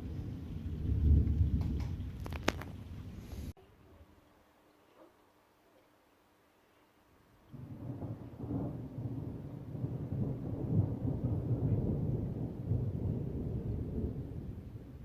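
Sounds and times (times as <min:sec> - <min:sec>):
thunder rumbling: 0:00.0 - 0:03.6, 0:07.5 - 0:15.0.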